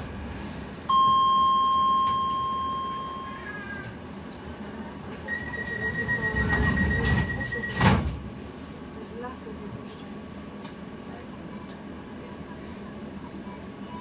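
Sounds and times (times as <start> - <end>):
train cabin hum: 0.0 - 13.9
steady warning beep: 0.9 - 3.4.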